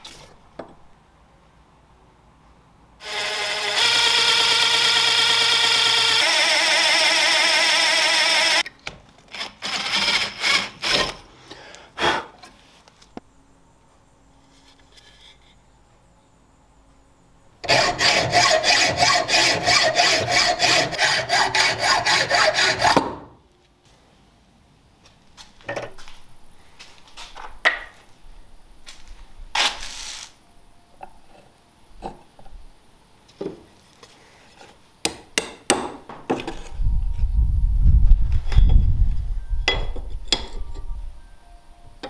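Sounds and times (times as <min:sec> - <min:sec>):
light knocks and scrapes: 0:14.4 - 0:15.6
hand tool rasping on wood: 0:17.6 - 0:23.0.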